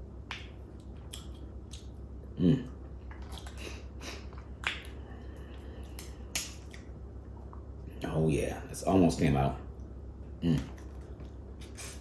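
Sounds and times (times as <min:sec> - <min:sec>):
person humming: 0:02.4 - 0:02.8.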